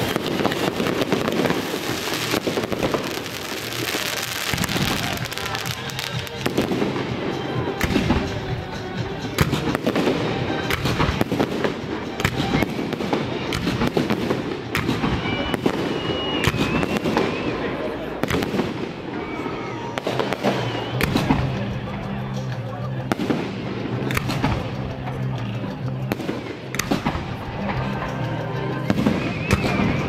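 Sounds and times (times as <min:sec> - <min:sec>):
fireworks sharp bangs: 0:00.0 - 0:21.7, 0:23.0 - 0:24.9
fireworks crackling and popping: 0:00.0 - 0:30.0.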